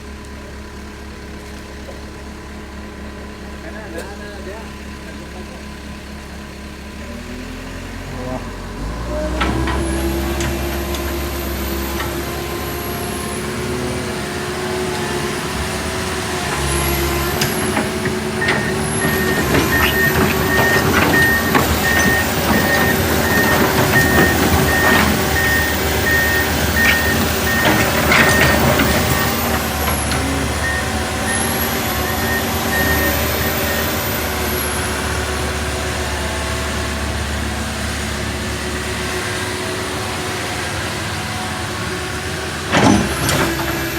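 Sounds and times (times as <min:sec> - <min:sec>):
diesel engine running under load: 0:00.0 - 0:43.9
clanking and knocking: 0:09.0 - 0:34.5, 0:42.7 - 0:43.9
warning beeps: 0:18.4 - 0:33.9.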